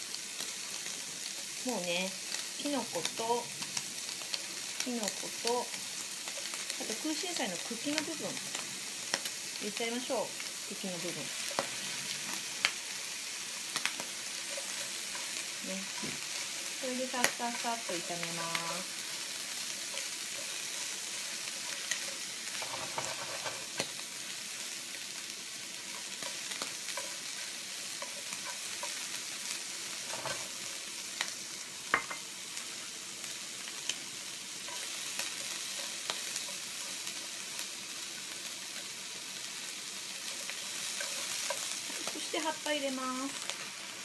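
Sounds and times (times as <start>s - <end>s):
food sizzling in a frying pan: 0.0s - 44.0s
chopsticks tapping and scraping pan: 13.8s - 17.7s, 18.5s - 24.0s, 25.8s - 29.2s, 29.9s - 30.6s, 31.9s - 32.2s, 34.6s - 37.2s, 40.2s - 42.4s.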